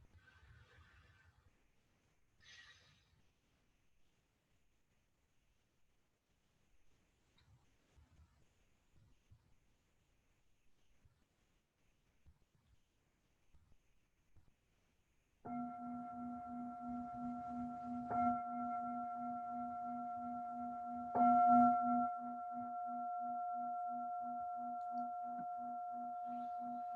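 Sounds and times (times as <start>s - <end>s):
singing bowl strikes ringing: 15.5s - 26.9s.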